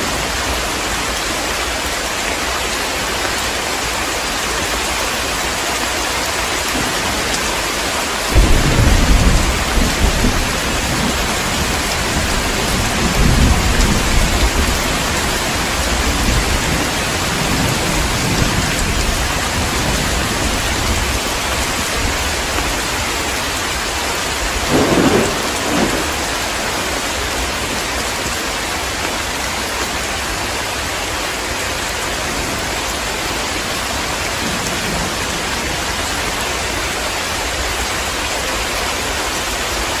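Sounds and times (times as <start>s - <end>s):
heavy rain: 0.0s - 40.0s
rolling thunder: 8.3s - 22.7s, 24.4s - 27.9s.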